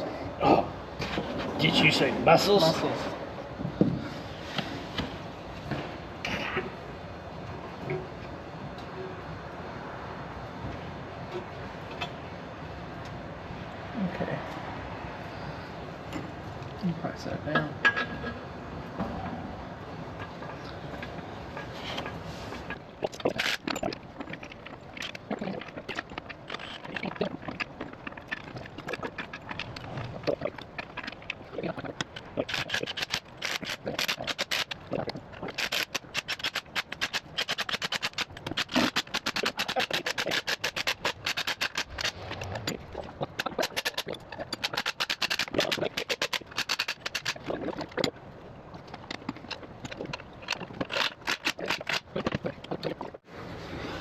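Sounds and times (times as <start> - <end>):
metallic clicks of hand tools: 22.7 - 48.1, 48.9 - 52.8.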